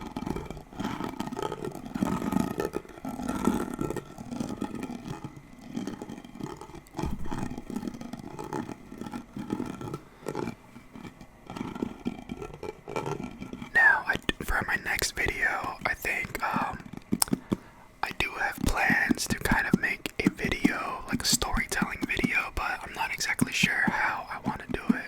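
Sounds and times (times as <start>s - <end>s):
scratching and rubbing on object: 0.0s - 25.0s
knock: 7.0s - 7.6s.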